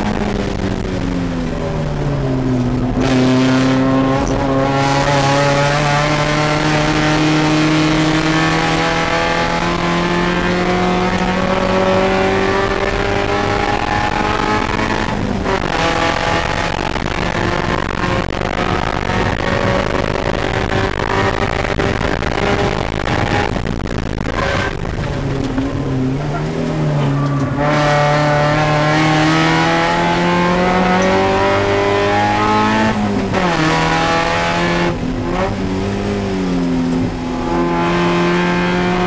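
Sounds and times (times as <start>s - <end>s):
race car engine accelerating: 0.0s - 39.0s.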